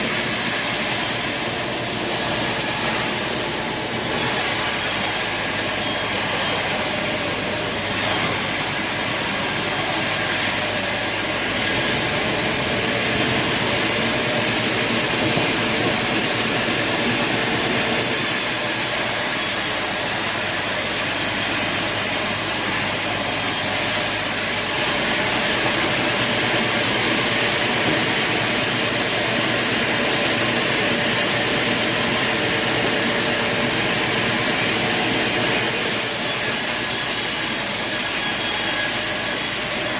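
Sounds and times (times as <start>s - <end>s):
sawmill saw cutting wood: 0.0s - 39.9s.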